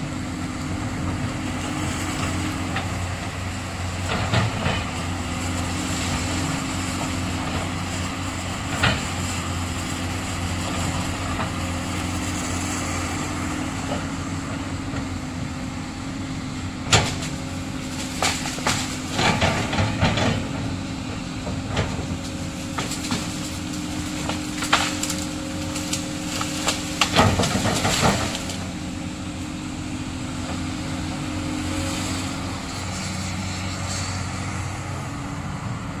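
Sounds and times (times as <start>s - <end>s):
excavator diesel engine running: 0.0s - 36.0s
sharp cracks and knocks: 16.9s - 20.6s, 21.7s - 28.7s.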